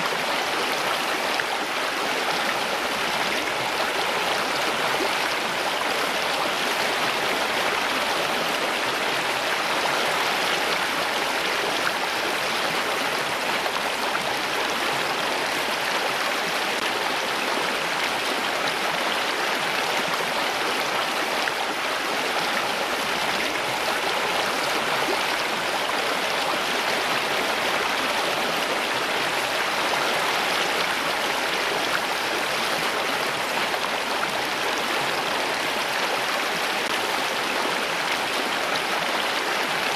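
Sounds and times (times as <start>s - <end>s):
water flowing in a stream: 0.0s - 39.9s.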